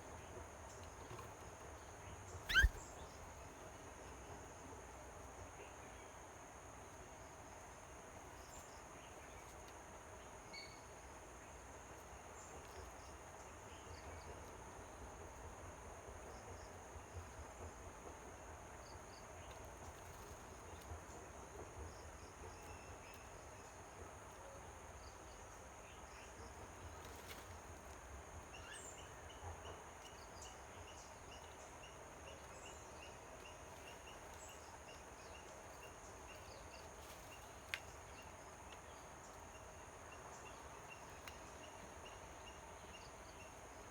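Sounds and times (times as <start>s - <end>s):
bird chirps: 2.5s - 2.8s
bird repeating short note: 2.5s - 2.8s.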